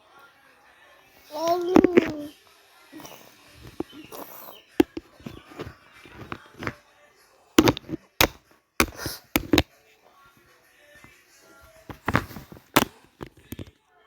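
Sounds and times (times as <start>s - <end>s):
person speaking: 1.3s - 2.3s, 7.6s - 9.6s.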